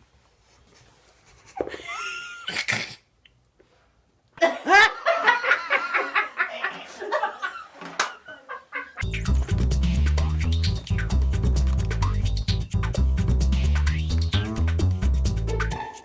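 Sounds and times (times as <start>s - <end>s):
person laughing hard: 1.4s - 3.0s, 4.4s - 9.0s.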